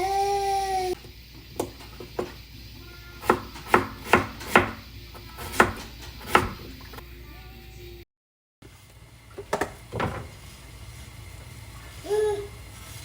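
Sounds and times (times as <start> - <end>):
knife chopping on cutting board: 3.2 - 6.7.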